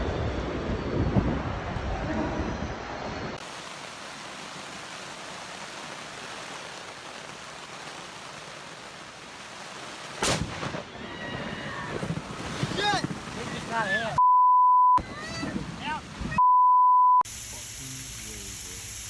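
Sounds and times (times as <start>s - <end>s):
loud lightning crack: 0.0s - 2.4s, 10.0s - 14.2s
low wind rumble: 0.0s - 3.4s
heavy rain hissing: 0.9s - 14.2s, 15.0s - 16.4s, 17.2s - 19.0s.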